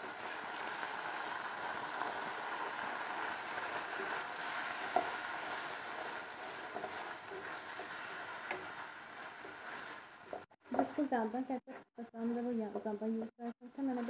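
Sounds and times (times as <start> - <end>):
fish frying sizzling hiss: 0.0 - 11.2.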